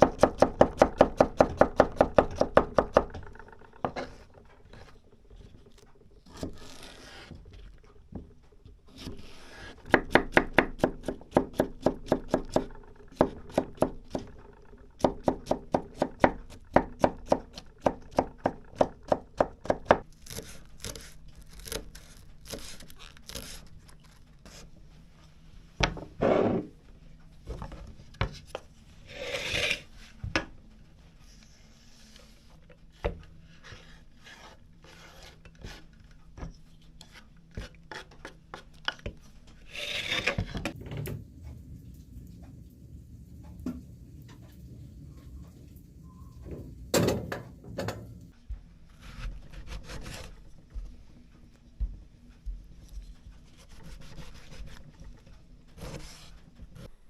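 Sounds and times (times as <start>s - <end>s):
scraping sounds: 28.4s - 30.2s, 39.5s - 40.8s.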